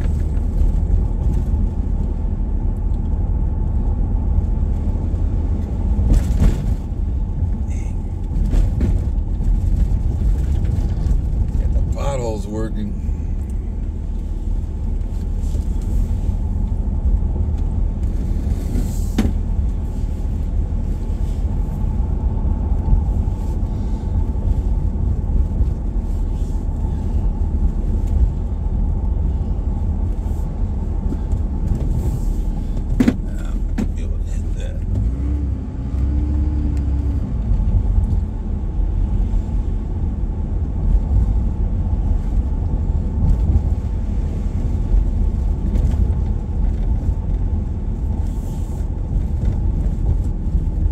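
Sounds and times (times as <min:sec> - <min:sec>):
vehicle cabin rumble: 0:00.0 - 0:50.9.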